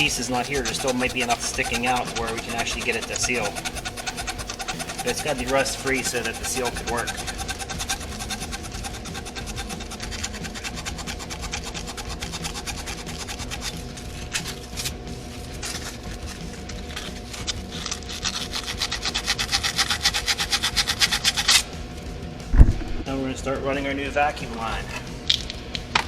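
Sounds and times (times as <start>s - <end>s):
hand scrubbing on metal: 0.0s - 21.8s.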